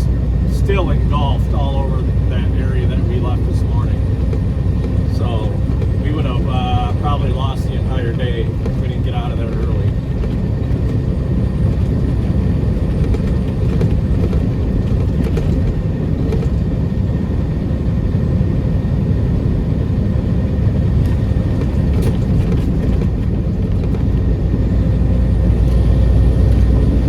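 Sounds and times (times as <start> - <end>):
road noise: 0.0 - 27.0
truck diesel engine rumble: 0.0 - 27.0.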